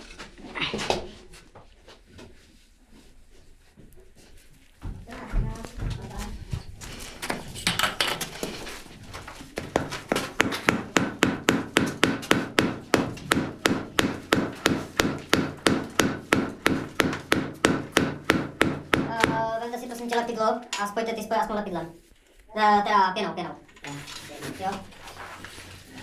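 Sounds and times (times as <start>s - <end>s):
rapid hammer blows: 9.5s - 19.6s.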